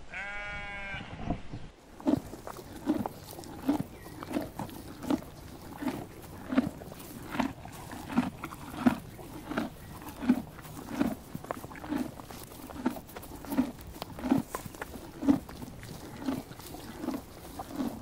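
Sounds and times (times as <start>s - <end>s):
horse tearing and chewing grass: 1.8s - 18.0s.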